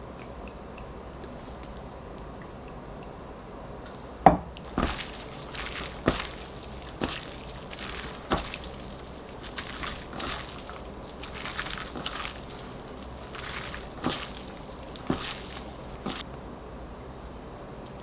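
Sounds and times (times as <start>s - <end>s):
scraping and rustling: 4.7s - 16.2s.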